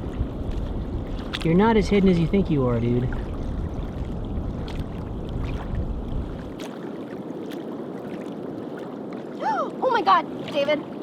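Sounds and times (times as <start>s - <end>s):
wind rumbling on microphone: 0.0s - 11.0s
water washing among rocks: 9.4s - 11.0s.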